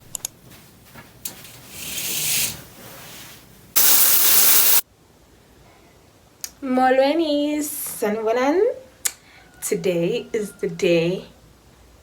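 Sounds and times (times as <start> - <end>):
hissing: 3.8 - 4.8.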